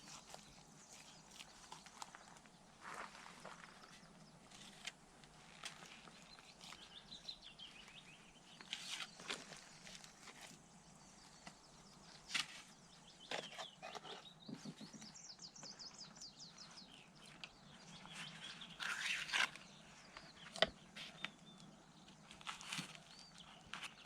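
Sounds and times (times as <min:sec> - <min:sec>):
small bird chirping: 0:05.4 - 0:24.0.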